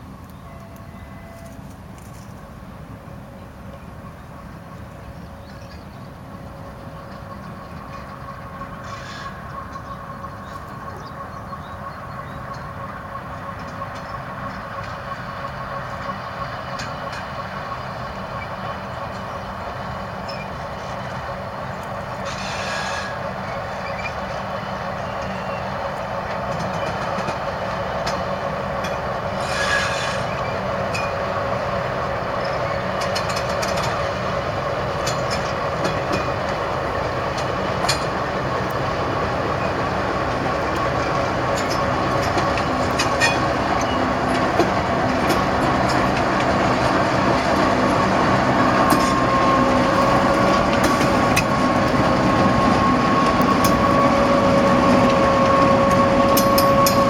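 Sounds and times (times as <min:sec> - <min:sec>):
freight train wagons rumbling: 0:00.0 - 0:57.0
wheels clicking over rail joints: 0:04.1 - 0:57.0
high wheel squeal: 0:08.8 - 0:10.6, 0:22.2 - 0:25.7, 0:29.3 - 0:31.2, 0:47.6 - 0:57.0.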